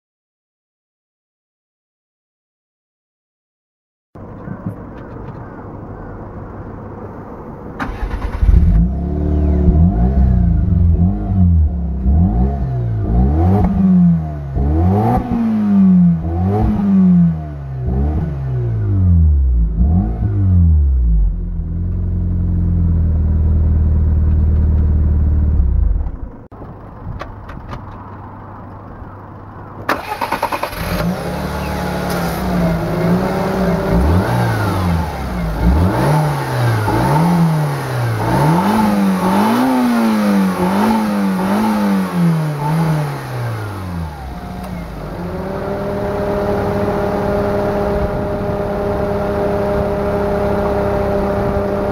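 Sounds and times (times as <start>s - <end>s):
car engine revving: 7.8s - 26.3s, 29.9s - 51.9s.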